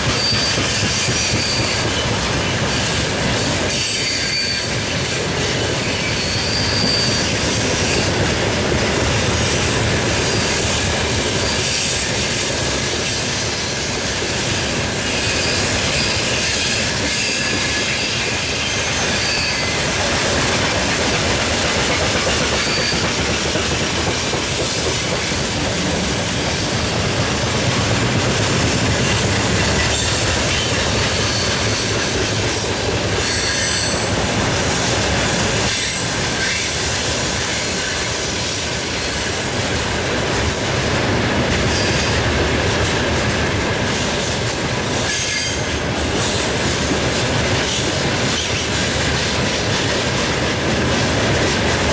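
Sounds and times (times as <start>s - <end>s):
high wheel squeals: 0.0s - 8.2s, 14.5s - 20.0s, 22.5s - 23.2s, 29.1s - 32.2s, 33.1s - 34.2s
steel wheels running on rails: 0.0s - 51.9s.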